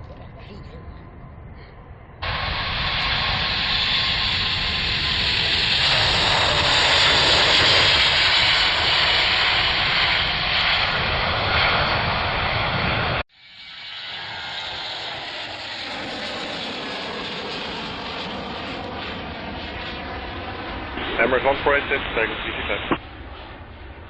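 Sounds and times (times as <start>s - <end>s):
jet engines at takeoff power: 0.0s - 24.0s.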